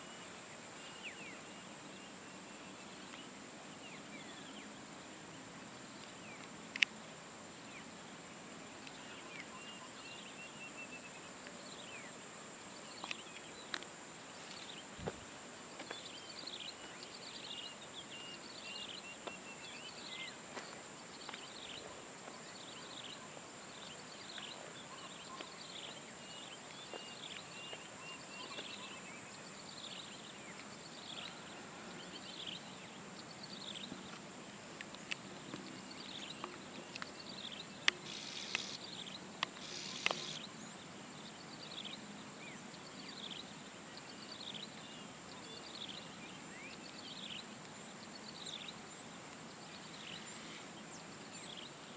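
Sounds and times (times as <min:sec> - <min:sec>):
birds chirping: 0:00.0 - 0:51.9
sharp clicks: 0:37.8 - 0:38.8, 0:39.4 - 0:40.4.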